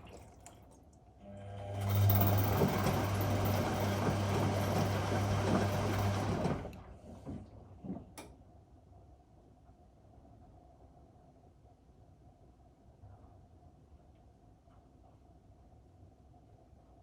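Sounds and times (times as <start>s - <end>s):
washing machine humming: 0.0s - 8.2s.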